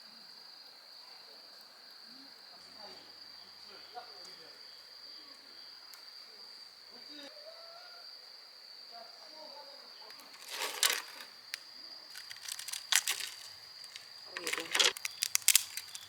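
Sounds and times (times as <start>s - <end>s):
crickets chirping: 0.0s - 16.0s
sharp crinkling bursts: 10.3s - 11.4s, 12.1s - 16.0s.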